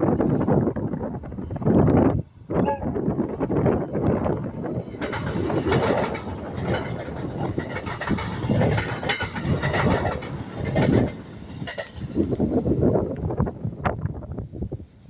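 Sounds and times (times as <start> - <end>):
passenger train passing: 0.0 - 15.0
wheels clattering over rail joints: 3.5 - 13.3.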